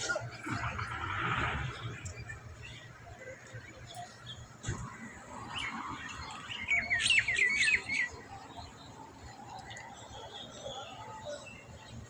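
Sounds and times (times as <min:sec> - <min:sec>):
small songbirds chirping: 0:05.4 - 0:12.0.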